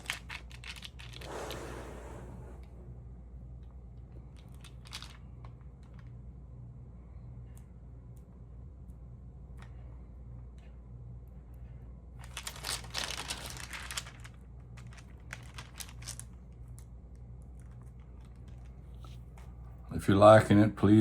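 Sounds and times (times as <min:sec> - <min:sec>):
paper and plastic crinkling: 0:00.0 - 0:01.3, 0:04.4 - 0:06.0, 0:12.2 - 0:19.6
low steady hum: 0:00.0 - 0:21.0.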